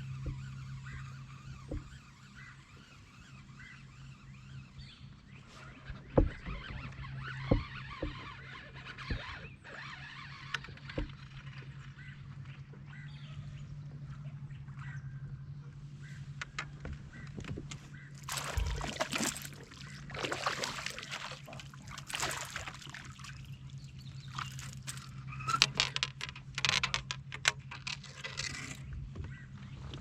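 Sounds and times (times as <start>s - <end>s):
water splashing around kayak: 0.0s - 3.2s, 17.1s - 26.0s
steady low hum: 11.1s - 25.5s.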